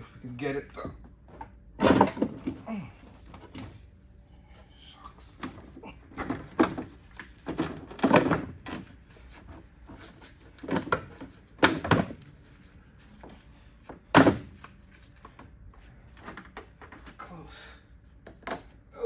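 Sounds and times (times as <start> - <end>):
thumps and clunks: 0.6 - 3.9, 5.4 - 12.3.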